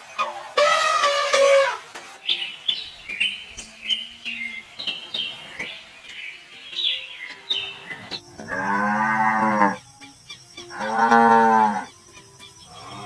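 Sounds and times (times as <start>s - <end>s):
cow mooing: 8.4s - 9.8s, 10.7s - 11.9s.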